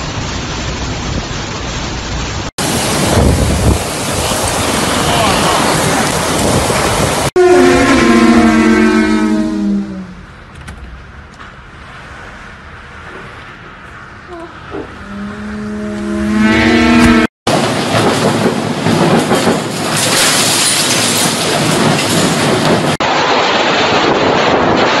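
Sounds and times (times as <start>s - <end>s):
storm-force wind roaring: 2.3s - 25.0s
low horn-like tone: 7.4s - 10.2s, 14.2s - 17.3s.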